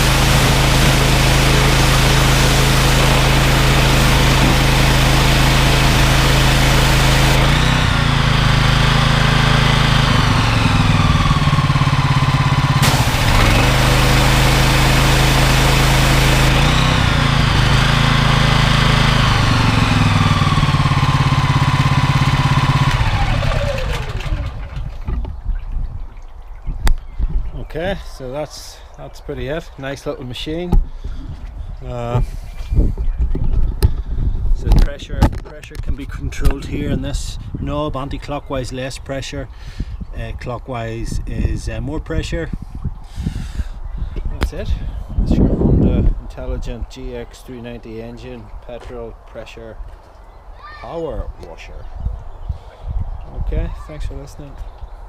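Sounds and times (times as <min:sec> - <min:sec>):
pressure washer lance spraying: 0:00.0 - 0:24.6
petrol engine running: 0:00.0 - 0:24.8.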